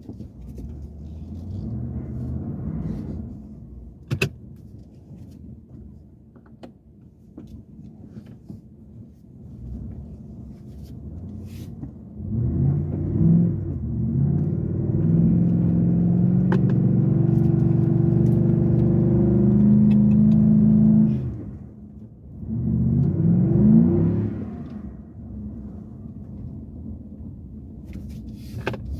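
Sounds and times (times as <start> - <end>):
engine revving: 12.2 - 21.6, 22.4 - 25.0.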